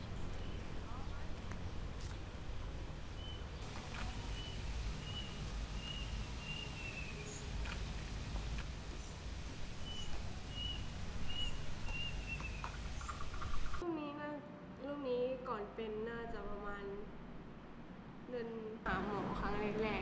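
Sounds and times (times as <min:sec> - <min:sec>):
low outdoor rumble: 0:00.0 - 0:20.0
bird chirping: 0:03.0 - 0:08.0, 0:09.8 - 0:13.8.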